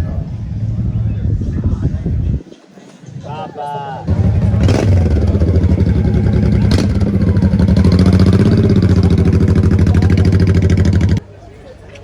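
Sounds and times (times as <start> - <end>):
motorcycle engine running: 4.1 - 11.2.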